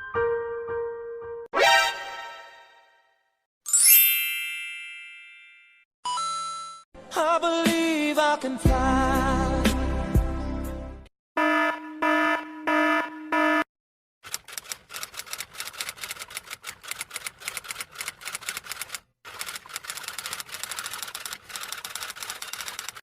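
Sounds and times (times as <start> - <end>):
buzzing electronic alarm tone: 11.4 - 13.7
rapid mechanical clicking: 14.2 - 23.0.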